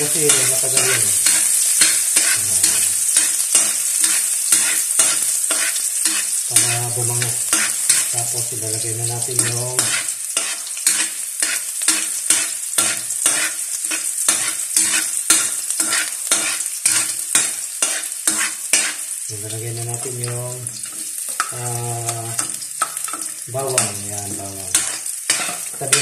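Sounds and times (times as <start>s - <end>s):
ginger sizzling in oil: 0.0s - 26.0s
spatula scraping wok: 0.0s - 26.0s.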